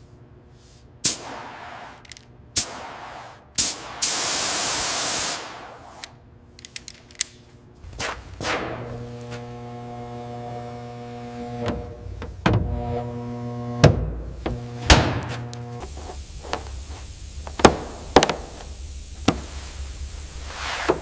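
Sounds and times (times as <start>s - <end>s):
steady hum: 0.0s - 21.0s
spray gun clicks and hiss: 3.6s - 7.4s, 15.2s - 19.9s.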